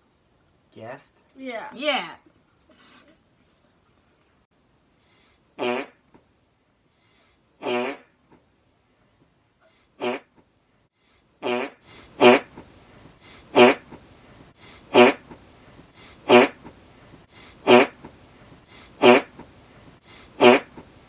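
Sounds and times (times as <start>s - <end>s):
raspberry blown on forearm: 7.6s - 8.1s, 10.0s - 10.3s, 11.4s - 12.7s, 13.5s - 14.0s, 14.9s - 15.4s, 16.2s - 16.7s, 17.6s - 18.1s, 19.0s - 19.5s, 20.4s - 21.0s.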